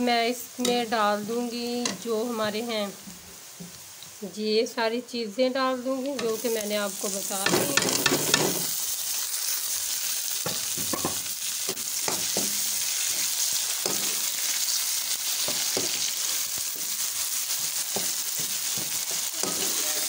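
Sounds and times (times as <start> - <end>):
vegetables sizzling in hot oil: 0.0 - 20.0
spoon scraping and knocking pan: 7.4 - 8.7, 10.4 - 14.5, 15.4 - 19.8.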